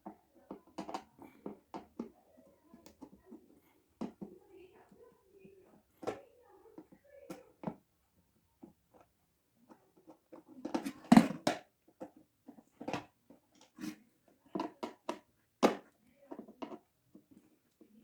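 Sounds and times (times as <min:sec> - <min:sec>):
kettle parts clicking and knocking: 0:08.6 - 0:13.9.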